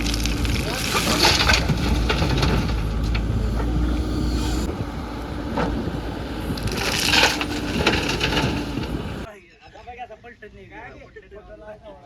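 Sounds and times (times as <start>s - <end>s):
diesel engine rumbling: 0.0s - 9.3s
scraping or clanking: 0.0s - 9.3s.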